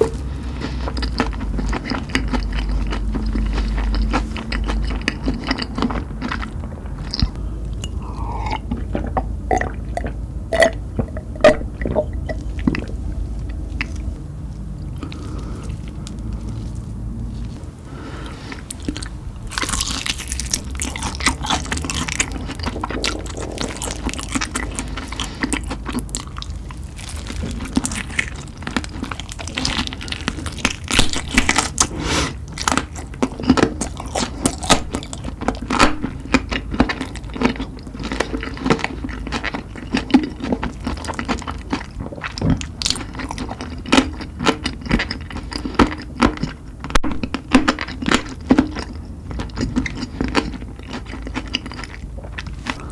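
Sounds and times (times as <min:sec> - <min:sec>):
person chewing crunchy food: 0:00.0 - 0:52.9
wet mouth clicks: 0:07.1 - 0:12.9, 0:20.2 - 0:26.4, 0:30.6 - 0:33.0.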